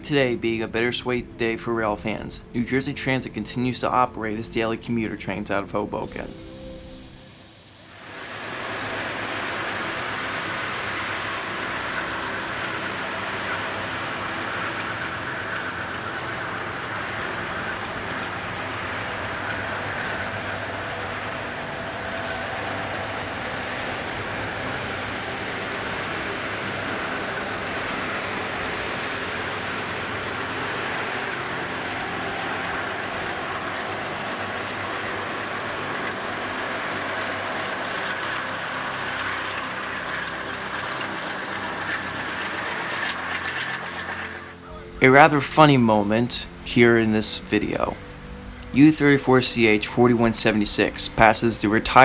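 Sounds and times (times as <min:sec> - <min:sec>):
train engine and wheels on rails: 0:00.0 - 0:52.0.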